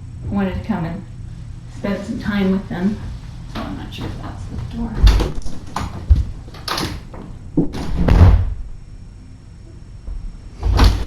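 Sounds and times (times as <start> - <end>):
dull thumps and bangs on door: 5.0 - 8.8, 10.1 - 11.0.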